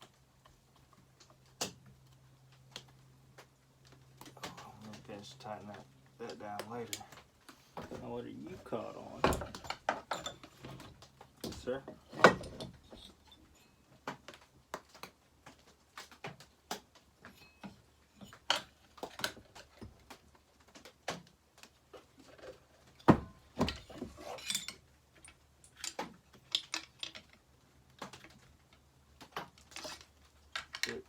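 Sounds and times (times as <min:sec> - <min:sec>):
metal parts and tools clinking: 0:09.1 - 0:13.9, 0:22.3 - 0:27.4, 0:29.6 - 0:31.0.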